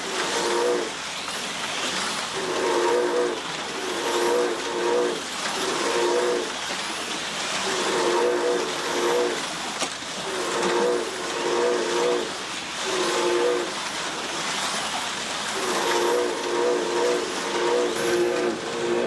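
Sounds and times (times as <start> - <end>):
slot car motors whining: 0.0 - 19.0
steady hiss: 0.0 - 19.0.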